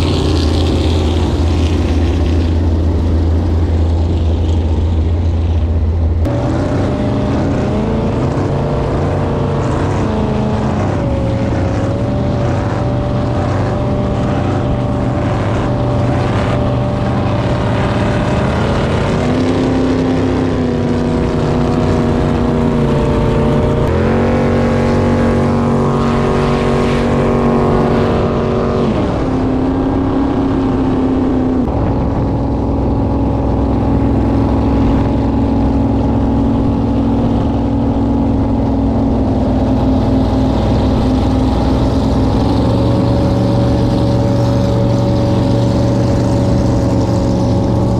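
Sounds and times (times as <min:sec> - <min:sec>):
boat engine running: 0:00.0 - 0:47.9.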